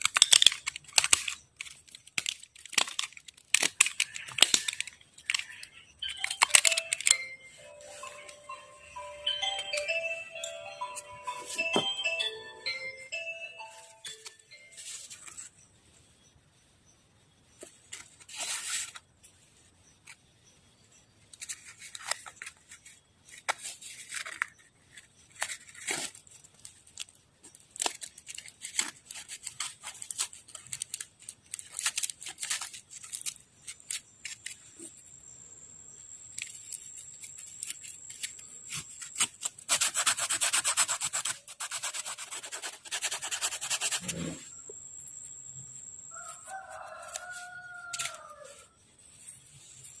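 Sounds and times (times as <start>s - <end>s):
hand sanding wood: 39.6s - 44.2s.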